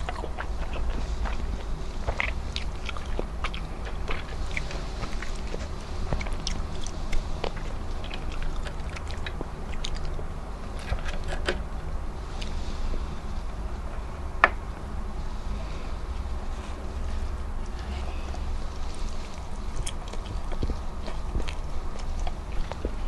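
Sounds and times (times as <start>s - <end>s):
person chewing food: 0.0s - 13.1s, 15.6s - 23.0s
low hum: 0.0s - 23.0s.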